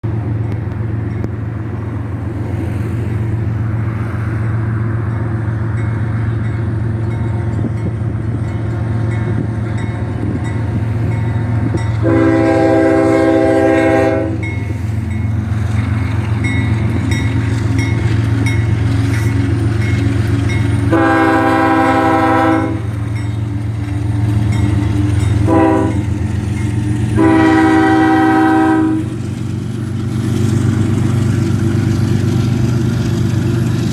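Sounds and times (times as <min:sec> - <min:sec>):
diesel locomotive horn: 0:11.0 - 0:15.0, 0:20.5 - 0:23.5, 0:24.8 - 0:29.3.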